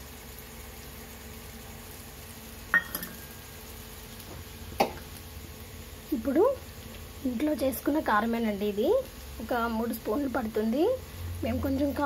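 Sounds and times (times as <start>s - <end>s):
food sizzling in oil: 0.0s - 12.0s
steel utensils clinking: 2.8s - 3.3s.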